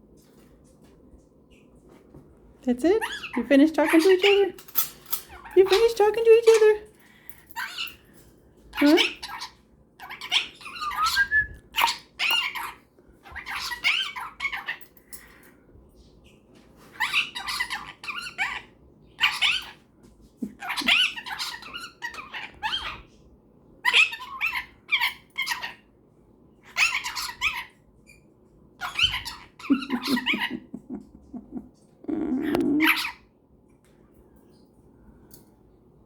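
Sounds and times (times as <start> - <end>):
parrots chattering and calling: 2.9 - 15.5, 16.8 - 23.2, 23.8 - 25.9, 26.6 - 33.3.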